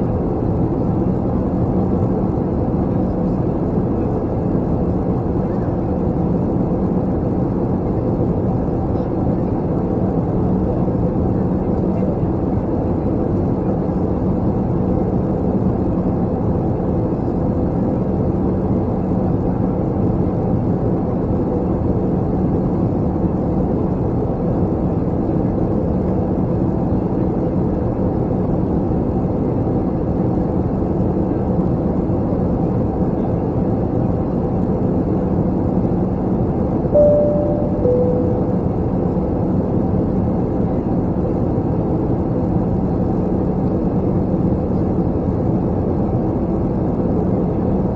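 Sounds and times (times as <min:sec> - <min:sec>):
airliner cabin engine and airflow noise: 0:00.0 - 0:47.9.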